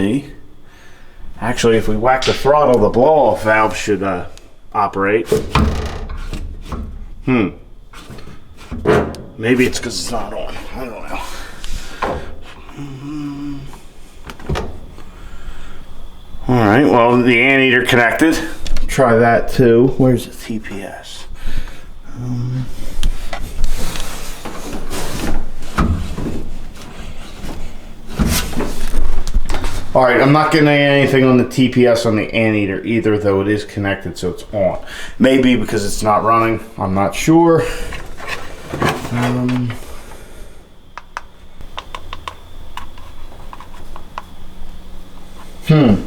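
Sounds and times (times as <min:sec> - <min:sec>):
rubbing and scraping handling noises: 0:01.5 - 0:12.8, 0:22.6 - 0:30.2, 0:37.6 - 0:40.2, 0:41.8 - 0:44.4
voiced murmur: 0:07.2 - 0:07.7, 0:12.5 - 0:13.9, 0:45.6 - 0:46.0
sharp clicks and knocks: 0:40.9 - 0:44.4.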